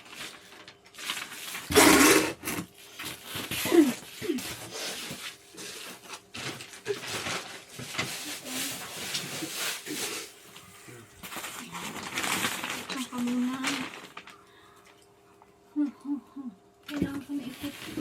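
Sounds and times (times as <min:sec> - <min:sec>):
scraping of chair parts: 0:01.7 - 0:02.7.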